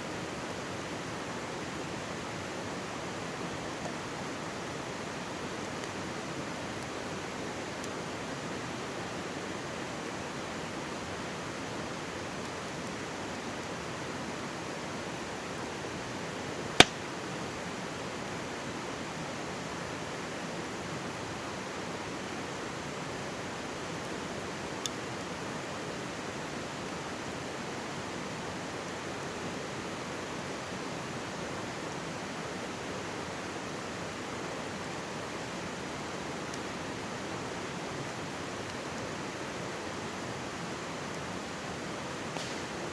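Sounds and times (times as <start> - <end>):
campfire popping: 16.1 - 17.0.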